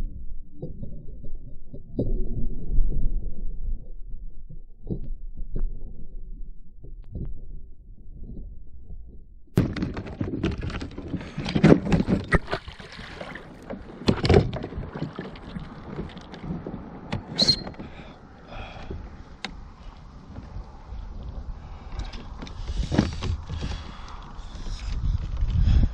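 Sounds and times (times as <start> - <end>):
water splashing: 11.0 - 18.4.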